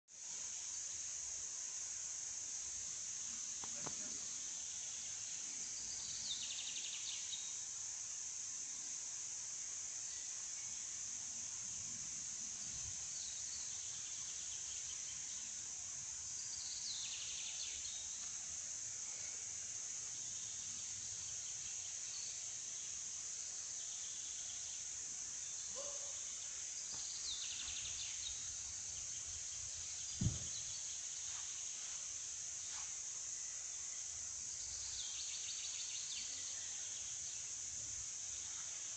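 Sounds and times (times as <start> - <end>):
low thump: 30.1 - 30.7.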